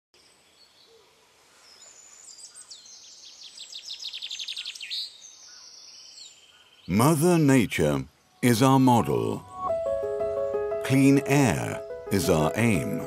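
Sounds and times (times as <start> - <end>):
faint bird chirps: 0.2 - 7.0.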